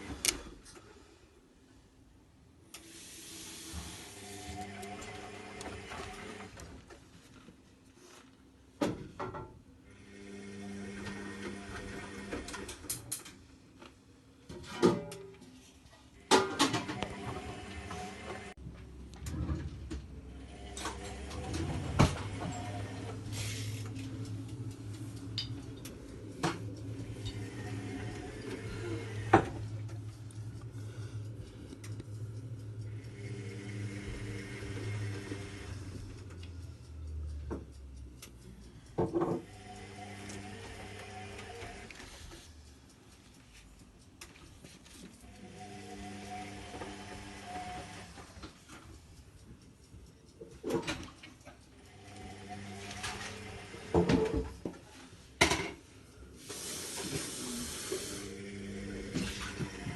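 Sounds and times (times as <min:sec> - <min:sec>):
washing machine low hum: 0:01.6 - 0:09.2, 0:14.2 - 0:38.2, 0:50.5 - 0:59.9
washing machine rushing hiss: 0:02.6 - 0:06.5, 0:20.3 - 0:25.2, 0:26.1 - 0:29.9, 0:32.6 - 0:36.1, 0:56.2 - 0:59.9
brief hiss: 0:23.3 - 0:23.8, 0:56.4 - 0:58.3.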